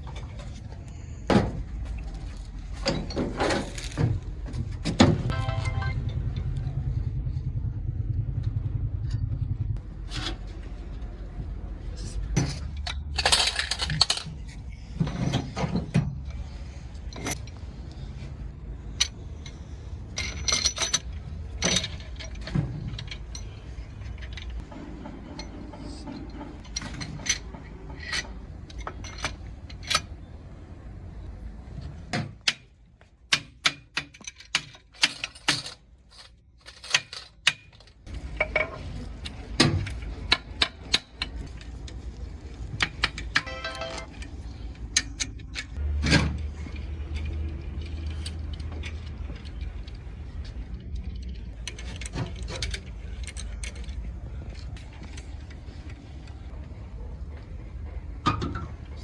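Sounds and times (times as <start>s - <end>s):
steady low hum: 0.0s - 32.1s
hand tools clanking on metal: 2.6s - 6.3s, 12.2s - 17.6s, 18.9s - 30.3s, 32.1s - 49.8s.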